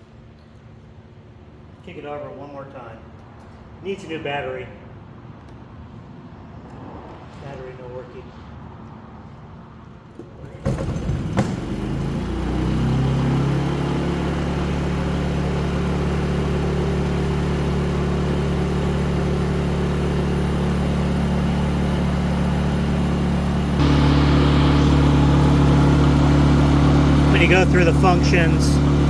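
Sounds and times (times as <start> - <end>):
generator engine running: 10.8 - 29.0.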